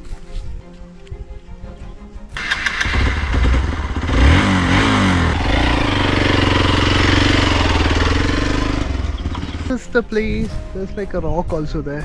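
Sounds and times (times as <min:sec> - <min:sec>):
motorcycle engine riding uphill: 0:02.4 - 0:10.6.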